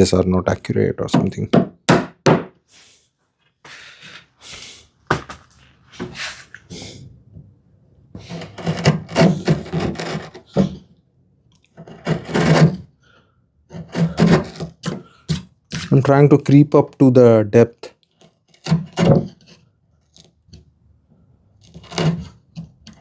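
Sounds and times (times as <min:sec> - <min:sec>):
chisel knocking and scraping wood: 0:01.1 - 0:02.6, 0:08.2 - 0:10.9, 0:11.7 - 0:12.9, 0:13.7 - 0:17.0, 0:18.1 - 0:20.7, 0:21.6 - 0:23.0.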